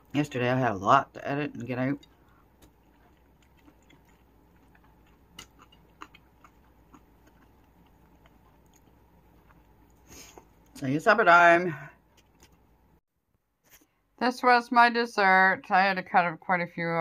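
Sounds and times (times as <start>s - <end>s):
person chewing: 1.5s - 10.8s, 12.0s - 12.6s.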